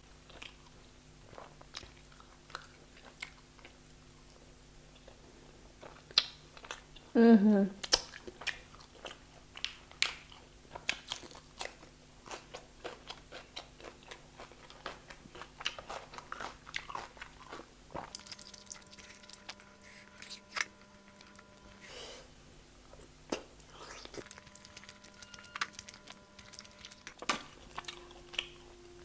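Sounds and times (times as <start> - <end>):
person chewing food: 0.2 - 7.1, 7.8 - 22.3, 22.9 - 29.0
wet mouth clicks and smacks: 7.8 - 8.6.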